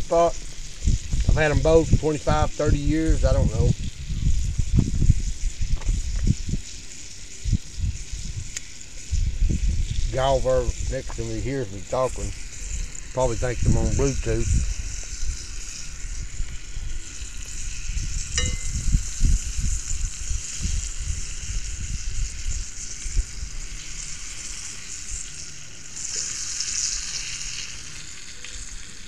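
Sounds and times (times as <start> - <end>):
chicken frying in oil: 0.0 - 29.0
single clink: 18.4 - 18.9.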